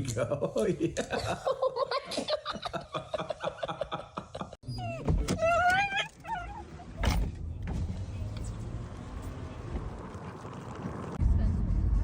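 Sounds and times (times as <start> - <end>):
dog whining: 4.6 - 7.1
small squeaks: 4.7 - 7.2.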